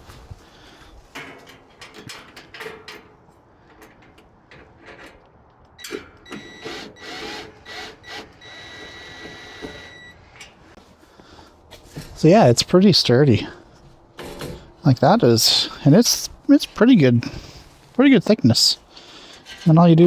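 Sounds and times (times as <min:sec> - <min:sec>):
metal hardware clicking and rattling: 0:01.1 - 0:06.3, 0:19.2 - 0:20.0
small tool motor whirring: 0:06.4 - 0:10.0.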